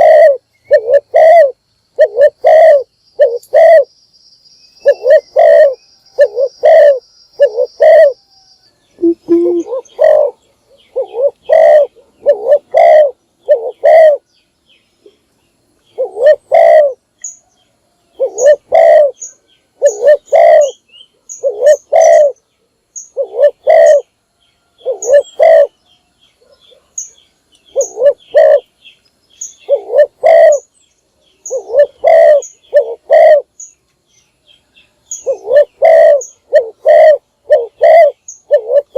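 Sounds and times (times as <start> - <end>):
dove cooing: 0.0 - 3.9, 4.8 - 8.3, 9.0 - 14.3, 15.9 - 17.0, 18.1 - 22.4, 23.0 - 24.1, 24.7 - 25.8, 27.7 - 28.8, 29.6 - 30.7, 31.4 - 33.6, 35.1 - 38.9
small bird chirping: 0.0 - 38.9.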